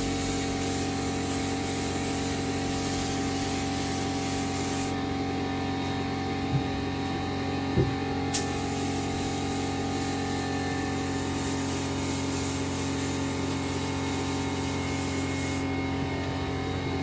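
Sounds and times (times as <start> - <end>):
spray gun hissing: 0.0 - 5.0, 6.6 - 15.7
steady hum: 2.4 - 10.8.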